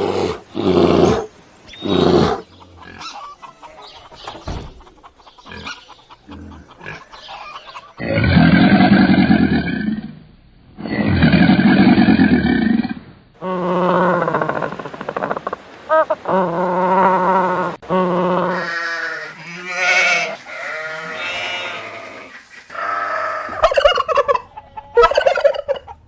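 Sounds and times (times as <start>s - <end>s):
loud animal calls: 0.0s - 10.0s, 10.8s - 25.9s
soft mixed animal noises: 0.0s - 10.2s, 10.9s - 26.0s.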